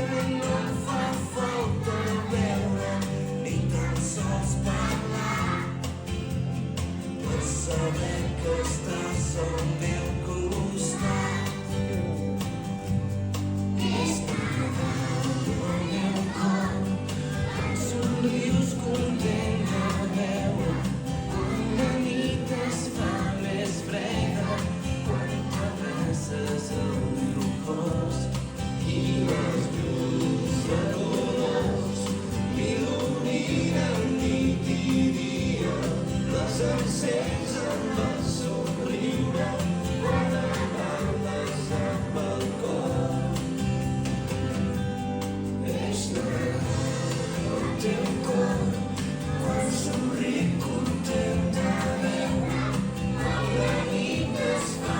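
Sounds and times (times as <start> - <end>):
choir singing: 0.0 - 6.0, 7.2 - 12.2, 13.8 - 44.8, 45.6 - 54.9
musical accompaniment: 0.0 - 54.9.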